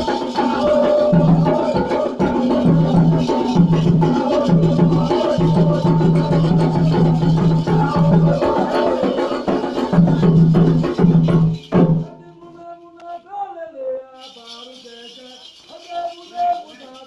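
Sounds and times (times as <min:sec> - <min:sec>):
person singing with gliding pitch: 0:00.0 - 0:09.7
ritual drumming with rattle: 0:00.0 - 0:12.2, 0:14.2 - 0:17.0.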